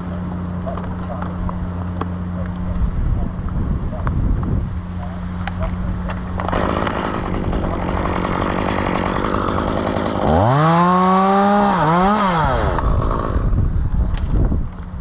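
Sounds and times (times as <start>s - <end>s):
chainsaw revving: 6.4s - 13.7s.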